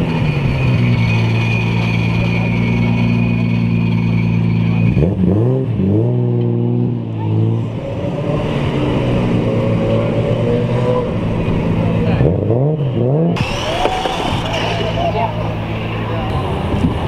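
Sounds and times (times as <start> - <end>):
engine throttle blips: 0.0 - 17.0
car engine idling: 7.0 - 17.0.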